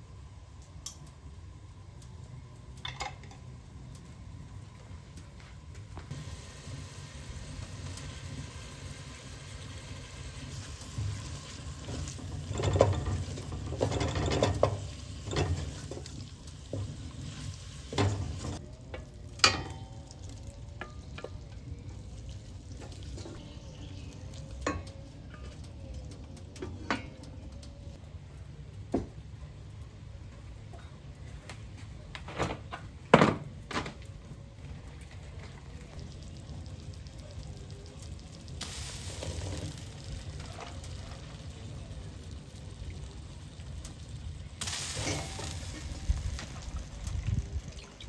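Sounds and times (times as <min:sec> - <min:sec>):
objects knocking and clattering: 0:11.8 - 0:17.0.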